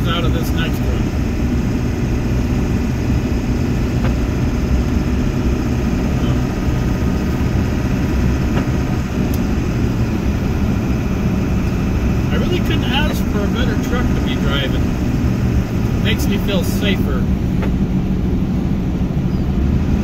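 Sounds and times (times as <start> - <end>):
diesel engine drone: 0.0 - 20.0
road noise: 0.0 - 20.0.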